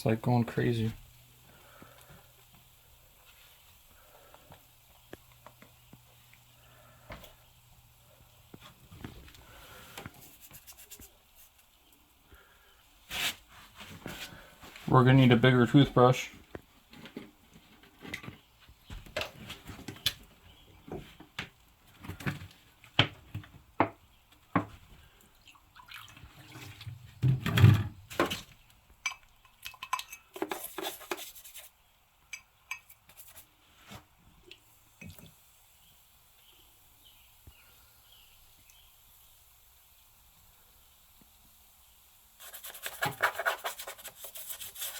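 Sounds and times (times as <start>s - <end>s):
wet scrubbing with toothbrush: 10.1s - 11.7s, 42.4s - 44.9s
dripping: 25.0s - 27.3s.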